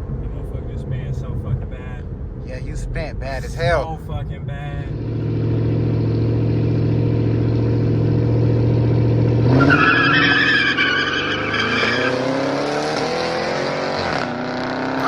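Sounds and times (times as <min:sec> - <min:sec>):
car engine accelerating: 0:00.0 - 0:15.0
tires squealing: 0:09.4 - 0:15.0.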